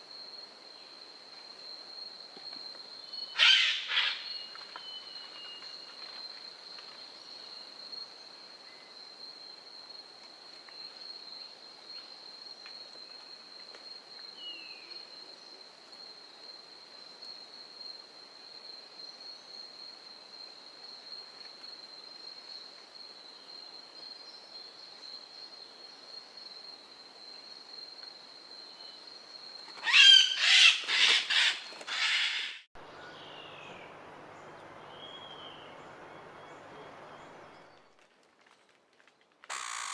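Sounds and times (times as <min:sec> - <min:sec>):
loud bird calls: 0:03.4 - 0:04.4, 0:29.8 - 0:37.8, 0:39.5 - 0:39.9
faint bird chirps: 0:32.8 - 0:37.8
insect high-pitched drone: 0:39.5 - 0:39.9.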